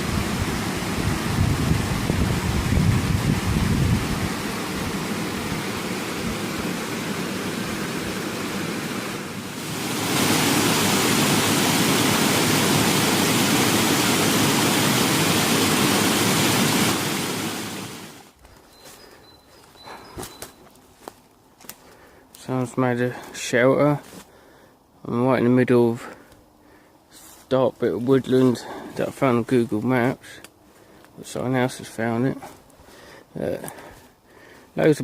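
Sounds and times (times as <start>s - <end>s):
rushing wind: 0.0s - 18.3s.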